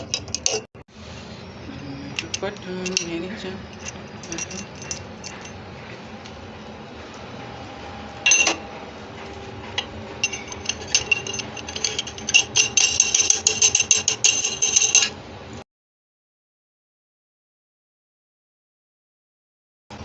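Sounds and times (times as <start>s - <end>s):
plastic parts rattling and scraping: 0.0s - 0.7s, 2.3s - 5.5s, 10.2s - 15.1s.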